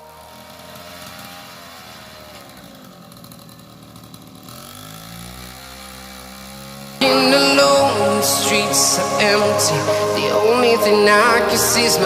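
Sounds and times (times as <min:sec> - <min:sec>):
small motorcycle engine revving: 0:00.0 - 0:08.0.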